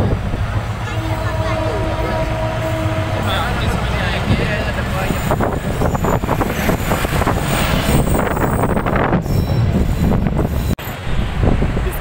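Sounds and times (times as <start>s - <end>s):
train wheels rolling on rails: 0.0s - 12.0s.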